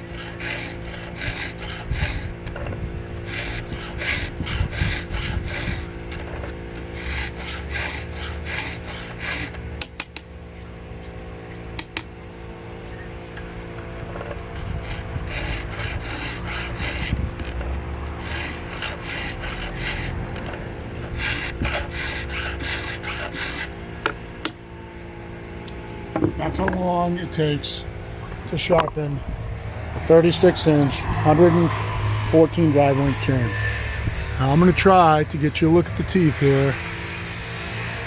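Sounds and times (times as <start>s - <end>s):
file rasping on chain teeth: 0.0s - 12.2s, 14.2s - 24.6s.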